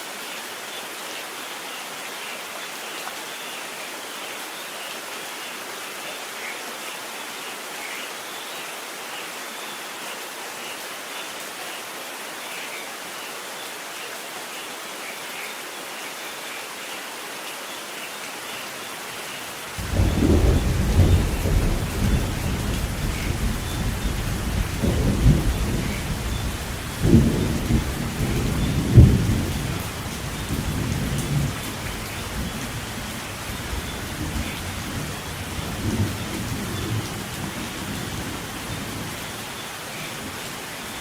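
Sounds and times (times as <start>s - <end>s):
rain falling: 0.0s - 41.0s
thunder rumbling: 19.8s - 39.2s.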